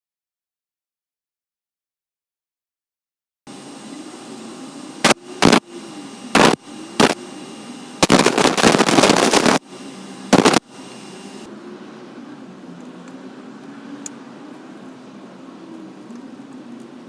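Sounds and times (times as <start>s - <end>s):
harsh grinding bursts: 5.0s - 11.5s.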